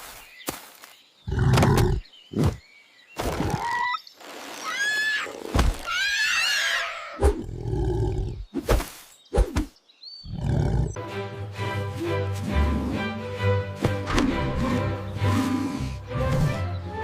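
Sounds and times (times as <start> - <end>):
background music: 10.9 - 17.0.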